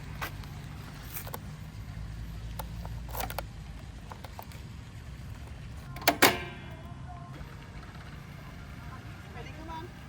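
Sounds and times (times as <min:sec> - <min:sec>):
bicycle clicks and rattles: 0:00.0 - 0:06.8.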